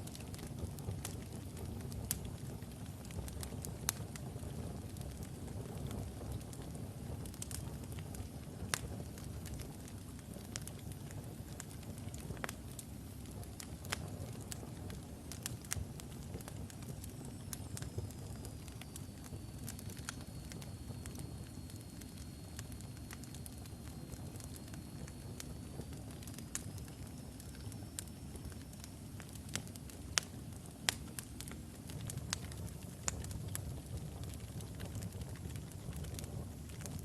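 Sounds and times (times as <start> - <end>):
rumble of fire flames: 0.0 - 37.0
wood fire crackling and popping: 0.0 - 37.0.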